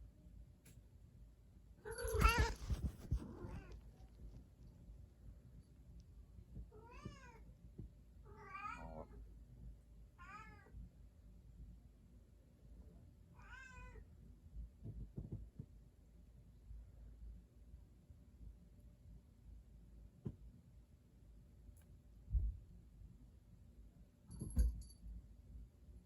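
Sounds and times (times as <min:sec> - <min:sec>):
cat meowing: 0:01.9 - 0:03.7, 0:13.4 - 0:14.0.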